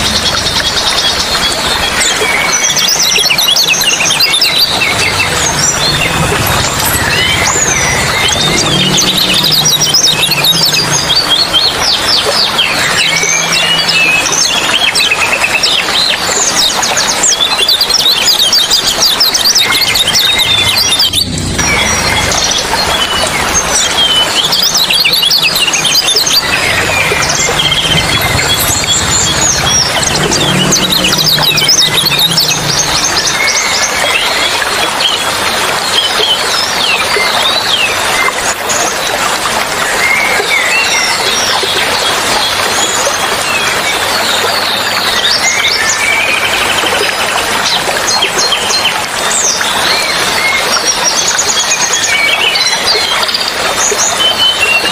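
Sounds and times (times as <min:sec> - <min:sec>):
songbirds chirping: 0:00.0 - 0:38.4
flowing water rushing: 0:00.0 - 0:54.9.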